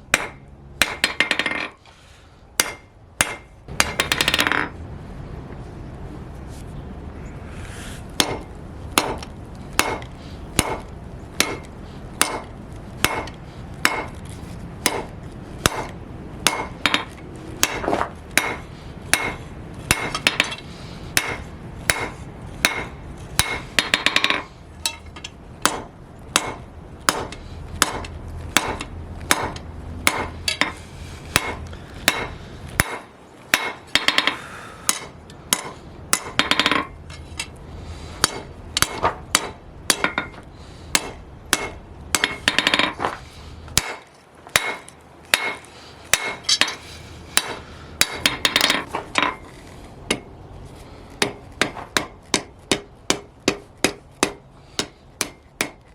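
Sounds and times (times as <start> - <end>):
steady low hum: 0.0 - 55.9
hammer forging steel on an anvil: 0.1 - 1.8, 2.6 - 4.7, 8.2 - 14.2, 14.8 - 37.6, 38.2 - 49.5, 50.1 - 50.3, 51.2 - 55.9.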